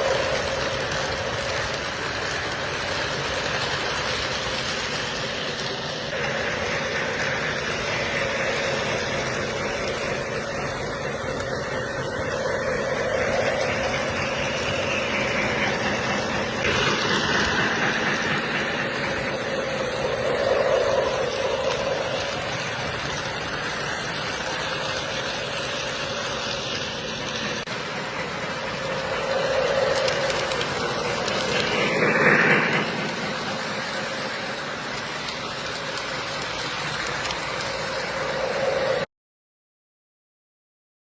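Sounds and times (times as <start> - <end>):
model trains running: 0.0 - 39.1.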